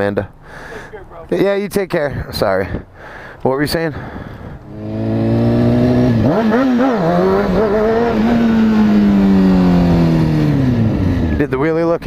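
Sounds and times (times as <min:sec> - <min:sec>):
motorcycle engine revving: 0:04.6 - 0:11.6.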